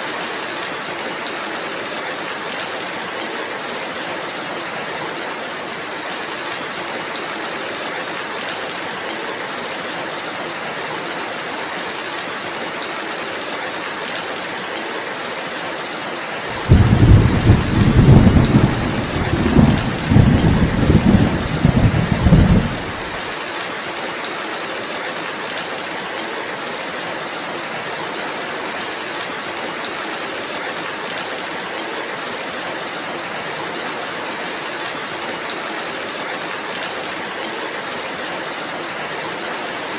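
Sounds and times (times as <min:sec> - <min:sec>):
steady rain falling: 0:00.0 - 0:39.9
thunder rumbling: 0:16.6 - 0:23.3.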